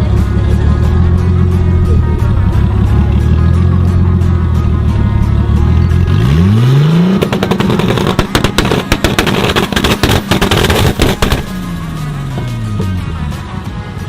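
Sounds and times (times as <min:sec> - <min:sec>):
car engine revving: 0:00.0 - 0:13.6
exhaust backfire pops and bangs: 0:05.3 - 0:13.1.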